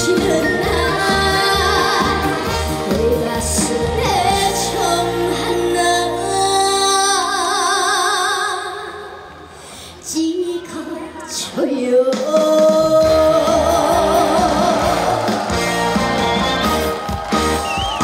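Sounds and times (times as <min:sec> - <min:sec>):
backing music with bass and beat: 0:00.0 - 0:04.4, 0:13.0 - 0:18.0
woman singing: 0:00.0 - 0:09.2, 0:10.0 - 0:15.4.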